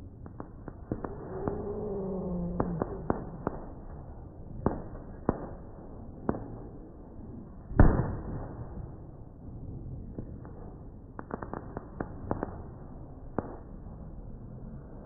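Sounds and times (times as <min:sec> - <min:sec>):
fireworks cracking: 0:00.0 - 0:06.8, 0:10.1 - 0:13.8
loud firework bang: 0:07.8 - 0:08.7.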